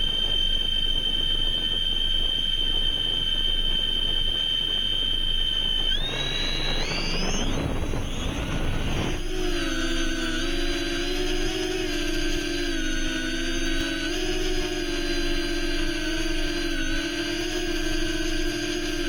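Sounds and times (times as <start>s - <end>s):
drone motors whining: 5.5s - 19.0s
rushing noise: 5.9s - 9.3s.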